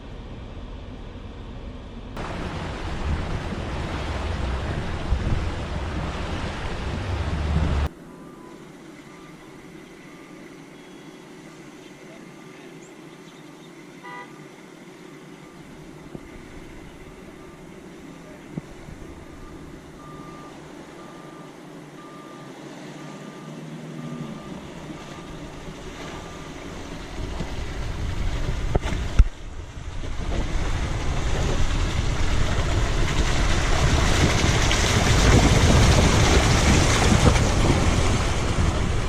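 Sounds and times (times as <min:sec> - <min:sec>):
vehicle ploughing through water: 0:02.2 - 0:39.0
vehicle warning beep: 0:08.1 - 0:11.2, 0:17.0 - 0:26.7.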